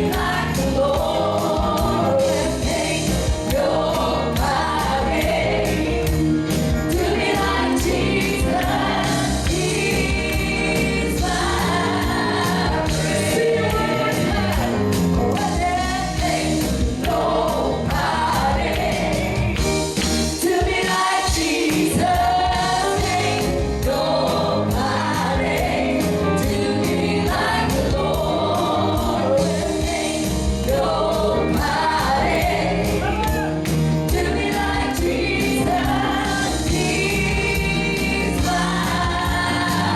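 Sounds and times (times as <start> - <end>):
band with steady beat: 0.0 - 39.9
choir singing gospel: 0.0 - 39.9.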